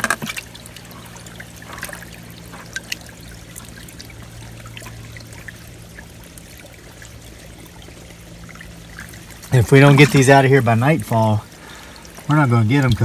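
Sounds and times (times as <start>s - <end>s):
small water splashes: 0.0s - 13.0s
water trickling into a pool: 0.0s - 13.0s.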